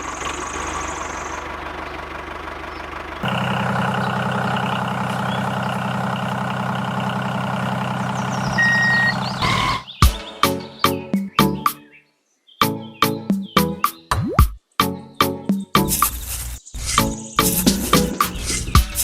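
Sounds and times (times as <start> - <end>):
tractor engine running: 0.0 - 10.0, 15.8 - 19.0
short high beep: 8.6 - 9.9.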